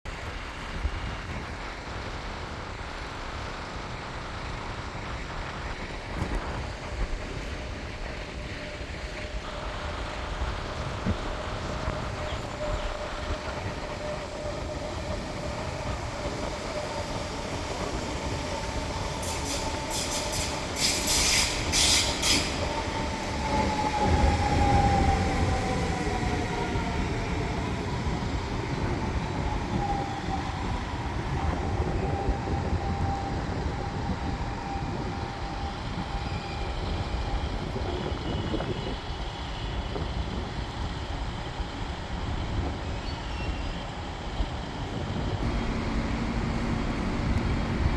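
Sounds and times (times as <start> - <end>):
wheels rumbling on rail: 0.1 - 47.9
short sharp hisses: 19.3 - 22.6
train motors whining: 45.4 - 47.9.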